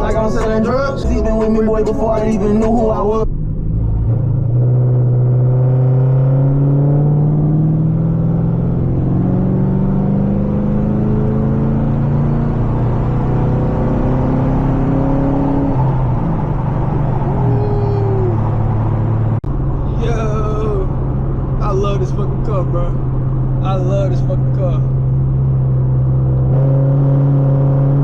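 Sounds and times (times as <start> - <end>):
car engine revving under throttle: 3.9 - 19.9, 22.3 - 28.0.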